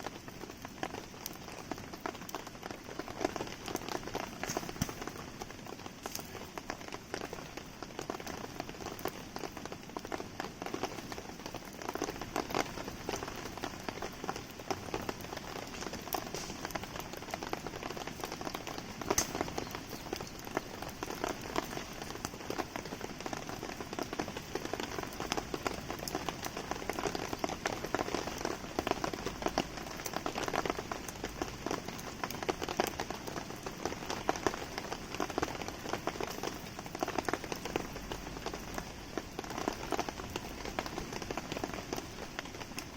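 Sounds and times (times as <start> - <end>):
steady rain pattering: 0.0 - 42.9
sharp ticks and pops: 3.2 - 7.2, 11.9 - 22.3.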